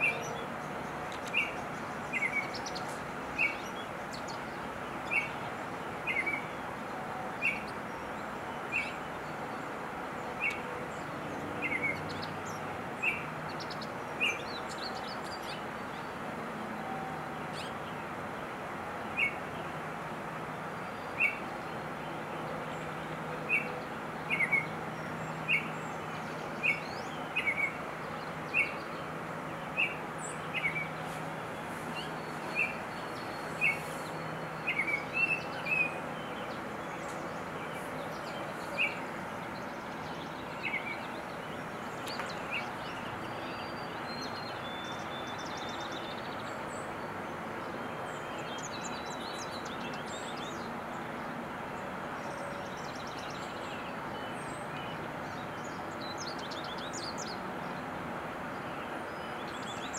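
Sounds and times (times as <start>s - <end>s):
bird chirping: 0.0s - 6.5s, 11.6s - 16.1s, 23.5s - 46.8s
outdoor background noise: 0.0s - 59.9s.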